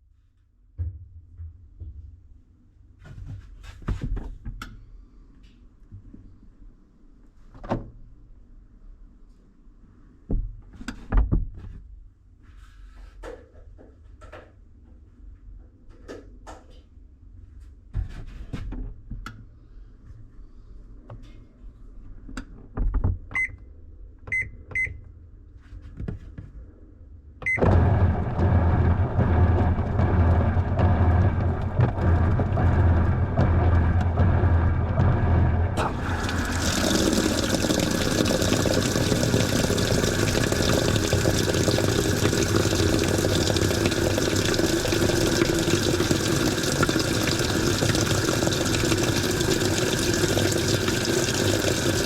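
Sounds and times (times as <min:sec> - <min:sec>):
water rushing into drum: 0:27.5 - 0:52.0.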